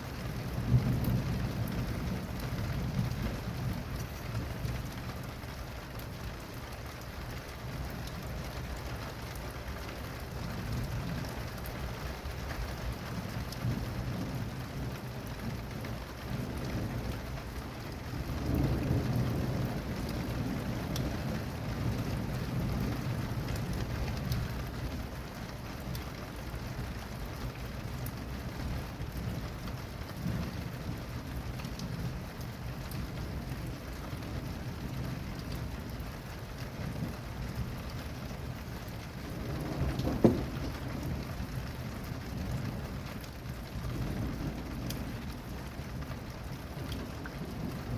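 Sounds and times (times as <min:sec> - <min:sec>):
rain pattering: 0:00.0 - 0:47.9
thunder rumbling: 0:13.0 - 0:25.1, 0:36.8 - 0:47.9.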